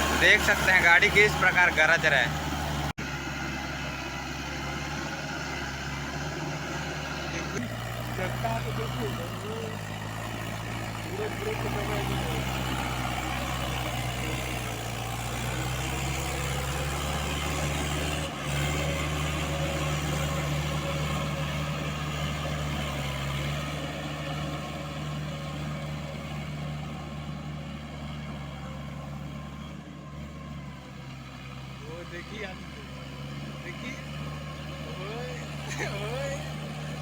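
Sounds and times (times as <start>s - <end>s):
tractor diesel engine running hard: 0.0s - 37.0s.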